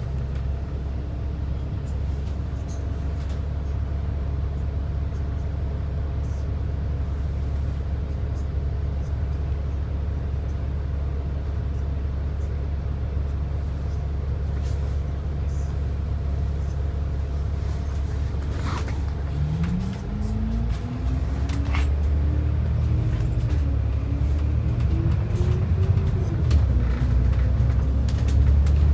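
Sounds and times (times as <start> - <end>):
bus engine and road rumble: 0.0 - 28.9
rising engine whine: 18.4 - 28.9.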